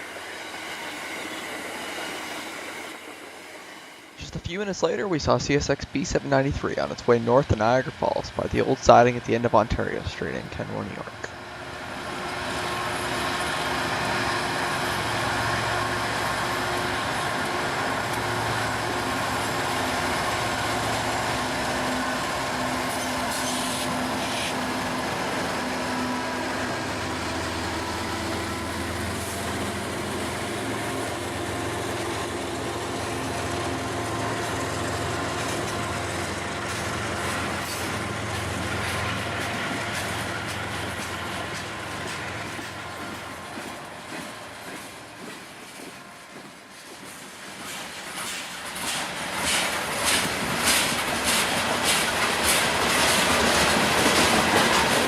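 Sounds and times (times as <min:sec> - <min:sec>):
diesel locomotives running: 0:00.0 - 0:55.0.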